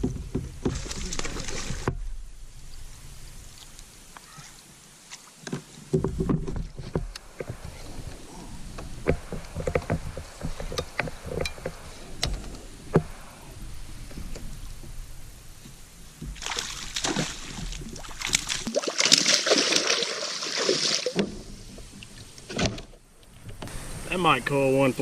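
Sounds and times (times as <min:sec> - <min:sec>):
fish splashing at water surface: 0:16.4 - 0:21.2.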